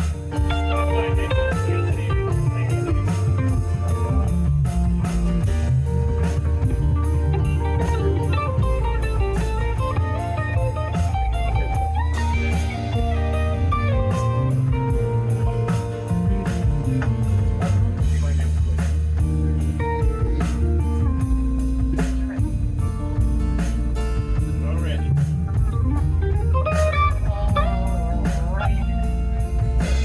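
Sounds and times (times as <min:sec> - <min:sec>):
electric guitar solo: 0:00.0 - 0:04.5, 0:05.6 - 0:17.7, 0:25.0 - 0:30.0
bass guitar: 0:00.0 - 0:30.0
drum kit steady beat: 0:00.0 - 0:30.0.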